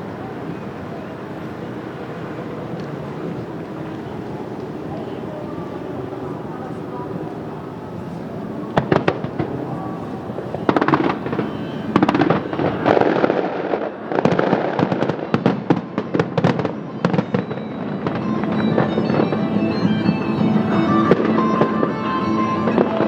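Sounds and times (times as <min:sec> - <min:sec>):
fireworks bangs: 0:00.0 - 0:23.0
fireworks crackling: 0:00.0 - 0:23.0
music: 0:17.5 - 0:23.0.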